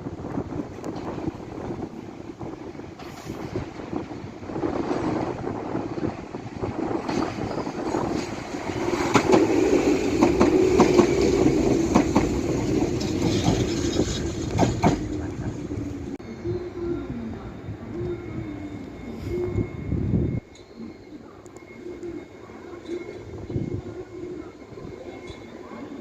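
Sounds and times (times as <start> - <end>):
train running hum: 0.0 - 26.0
train wheels clacking over rail joints: 7.0 - 15.8.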